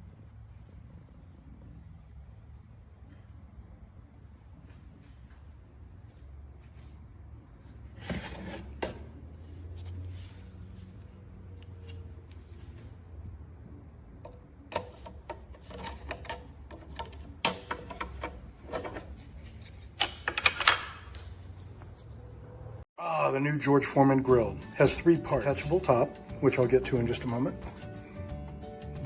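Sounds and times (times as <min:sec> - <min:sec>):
handling clicks and knocks: 0:14.3 - 0:22.0.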